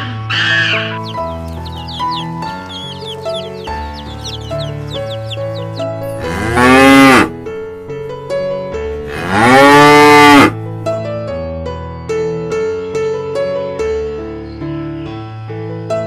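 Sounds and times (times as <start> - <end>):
soft piano music: 0.0 - 16.0
cow mooing: 6.1 - 7.4, 9.1 - 10.6.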